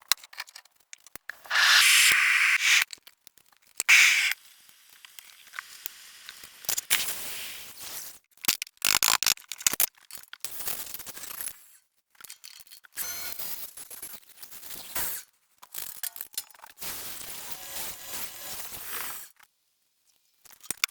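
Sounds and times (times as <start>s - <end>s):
short hissing bursts: 1.4s - 2.8s, 3.9s - 4.4s, 6.9s - 7.7s
clicks and scrapes: 3.9s - 4.4s.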